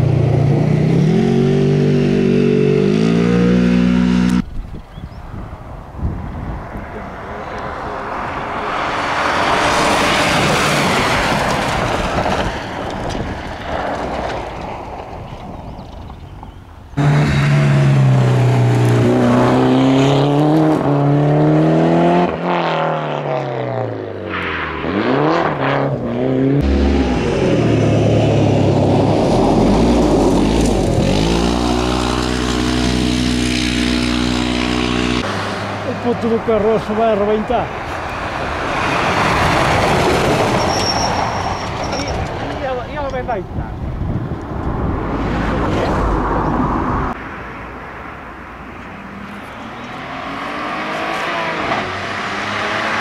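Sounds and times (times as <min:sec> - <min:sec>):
car passing at speed: 0:05.4 - 0:15.1, 0:17.0 - 0:42.4, 0:44.0 - 0:53.0
car engine revving: 0:17.0 - 0:41.0, 0:49.1 - 0:53.0.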